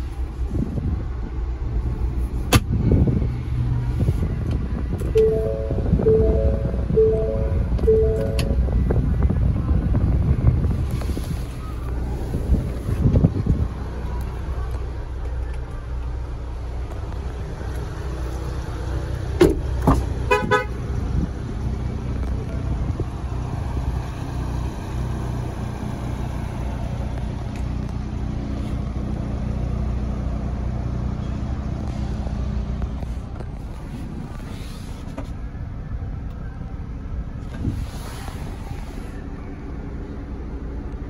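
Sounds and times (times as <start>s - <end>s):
car engine idling: 3.8s - 41.0s
short buzzy tone: 5.2s - 8.6s.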